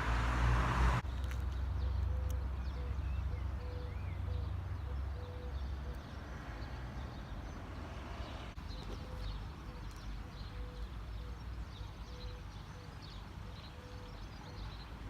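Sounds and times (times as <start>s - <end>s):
vehicle engine low rumble: 0.0s - 11.7s
birds calling: 0.0s - 15.0s.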